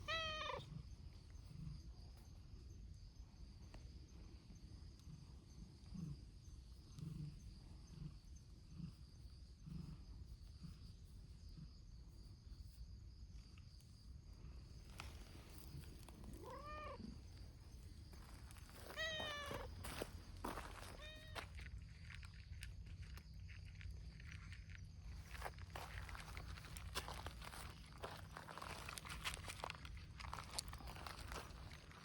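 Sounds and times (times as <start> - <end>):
cat meowing: 0.0 - 0.6, 16.4 - 17.1, 18.9 - 19.7, 21.0 - 21.4.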